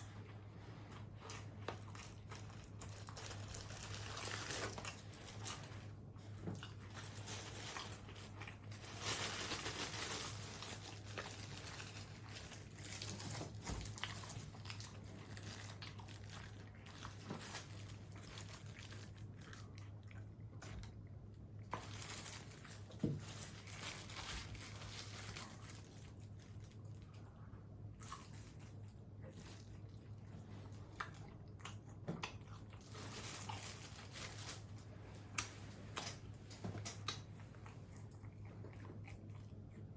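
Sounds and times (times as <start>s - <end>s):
crunching and chewing food: 0.0s - 39.9s
paper wrapper crinkling: 1.1s - 6.0s, 6.6s - 19.7s, 21.7s - 27.0s, 32.8s - 37.1s.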